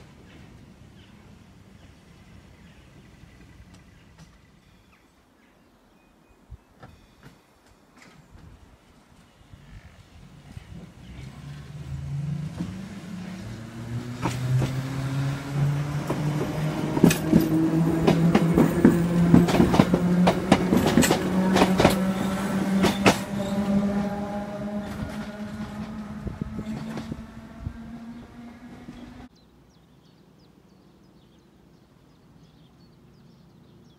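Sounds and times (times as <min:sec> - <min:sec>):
wheels clacking on track: 0:10.1 - 0:29.3
electric train motor drone: 0:11.4 - 0:29.3.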